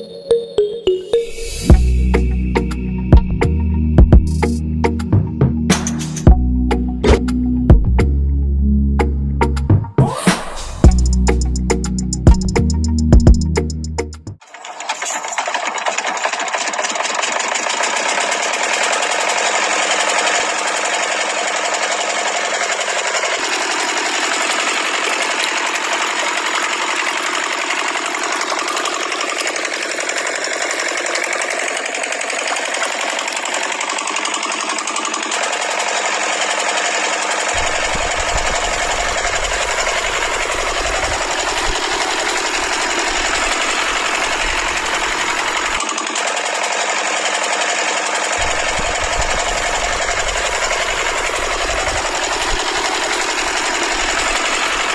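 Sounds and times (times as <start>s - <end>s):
low rumble: 1.7s - 5.6s
small electric motor whirring: 14.4s - 54.9s.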